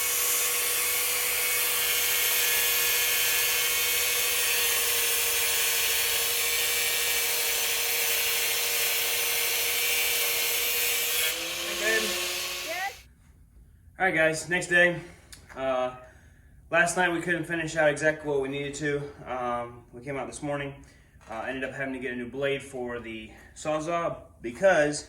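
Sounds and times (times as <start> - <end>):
power tool running: 0.0 - 13.0.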